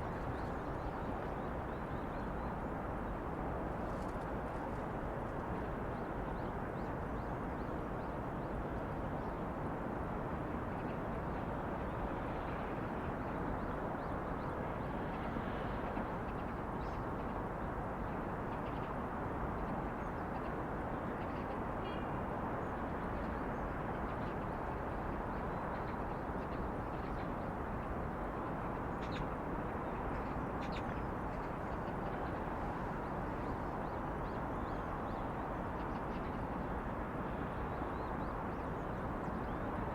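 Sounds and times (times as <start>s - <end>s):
distant traffic: 23.6s - 39.9s.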